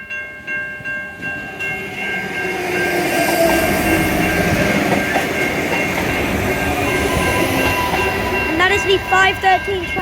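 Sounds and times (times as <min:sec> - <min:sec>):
train wheel and rail noise: 0:00.0 - 0:10.0.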